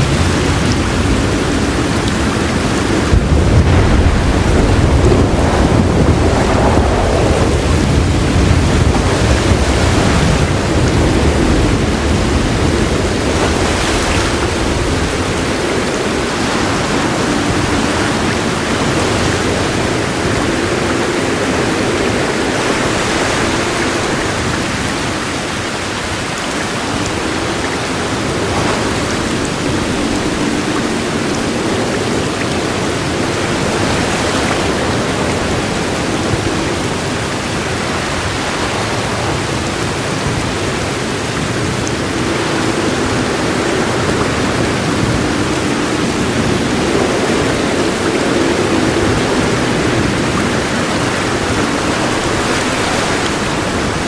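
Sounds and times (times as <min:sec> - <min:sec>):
low roll of thunder: 0:00.0 - 0:25.2
heavy rain falling: 0:00.0 - 0:54.0.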